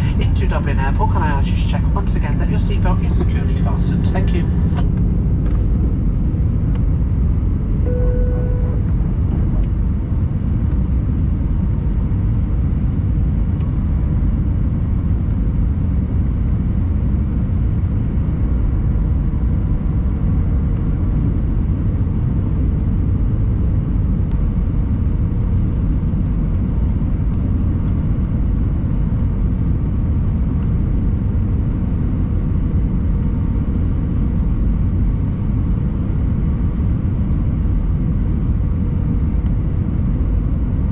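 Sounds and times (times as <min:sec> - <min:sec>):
airplane cabin roar: 0:00.0 - 0:40.9
short tone: 0:07.8 - 0:08.9.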